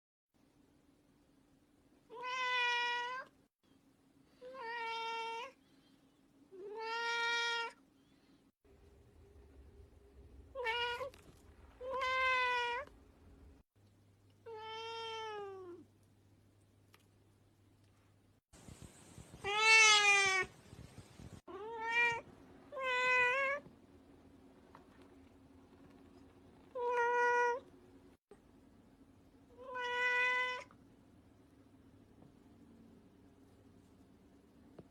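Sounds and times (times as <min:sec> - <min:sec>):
cat meowing: 0:02.1 - 0:03.3, 0:06.6 - 0:07.8, 0:19.4 - 0:20.5, 0:29.6 - 0:30.7.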